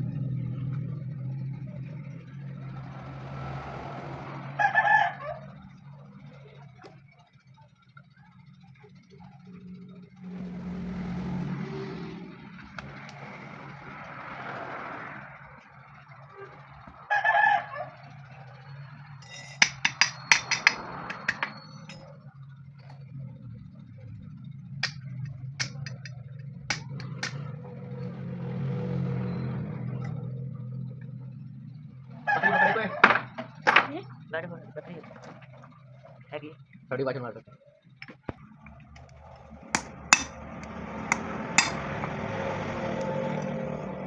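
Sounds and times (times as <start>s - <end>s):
low workshop hum: 19.2s - 22.1s, 23.6s - 27.4s, 38.0s - 42.0s
sharp taps and clicks: 25.6s - 26.1s, 26.7s - 27.4s.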